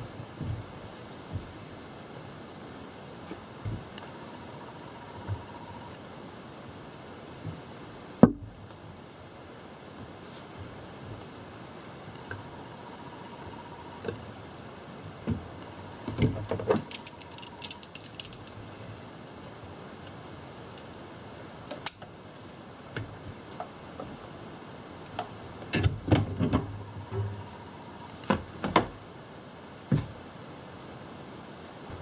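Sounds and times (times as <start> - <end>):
hand tools clinking and rattling: 16.6 - 18.7.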